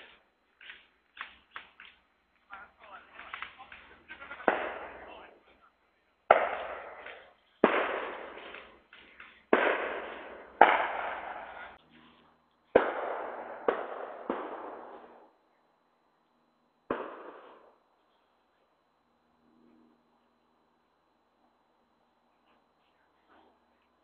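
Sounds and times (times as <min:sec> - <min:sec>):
loud sharp bangs with echo: 0:04.1 - 0:05.3, 0:06.3 - 0:08.8, 0:09.5 - 0:11.8, 0:12.8 - 0:15.3, 0:16.9 - 0:17.8.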